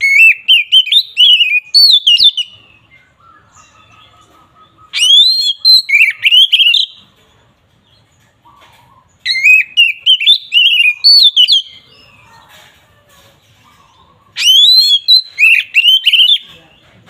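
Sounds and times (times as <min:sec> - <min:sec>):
bird singing whistled phrases: 0:00.0 - 0:04.1, 0:04.7 - 0:07.0, 0:09.2 - 0:12.1, 0:14.3 - 0:16.4.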